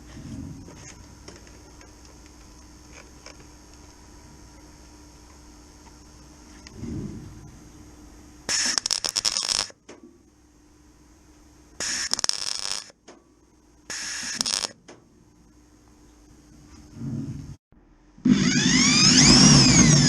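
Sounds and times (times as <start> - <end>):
welding arc crackling: 8.4 - 9.9, 11.8 - 13.0, 13.9 - 14.8.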